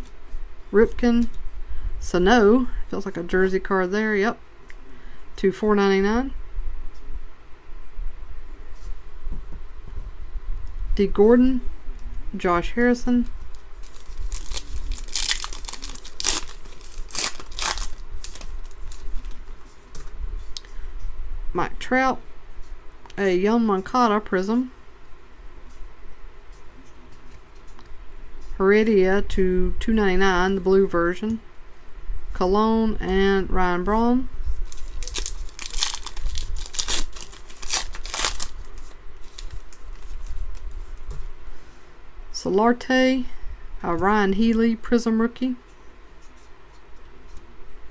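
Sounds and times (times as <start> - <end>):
trading cards rustling: 13.2 - 20.1, 34.6 - 41.2.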